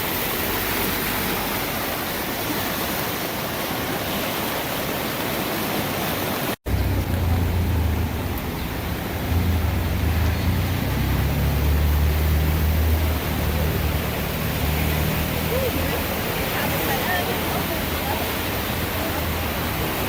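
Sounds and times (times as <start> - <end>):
floodwater rushing: 0.0 - 20.0
deep steady rumble: 6.7 - 15.8.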